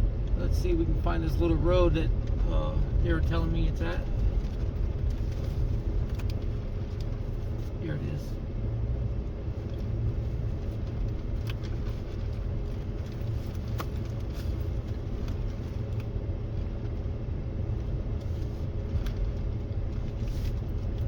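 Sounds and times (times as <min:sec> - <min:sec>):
truck engine and road rumble: 0:00.0 - 0:21.0
light clicks and rattles: 0:09.6 - 0:21.0.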